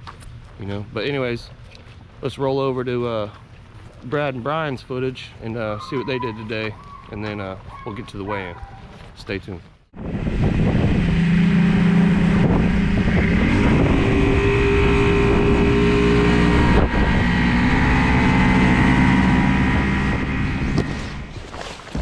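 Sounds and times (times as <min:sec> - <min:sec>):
rushing wind and water: 0:00.0 - 0:22.0
outboard motor running: 0:09.9 - 0:22.0.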